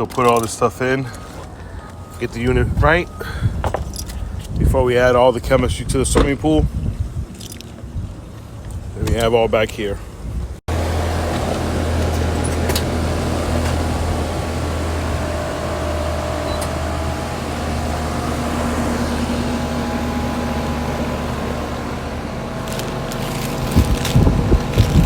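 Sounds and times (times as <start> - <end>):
pool pump motor humming: 10.7 - 25.0.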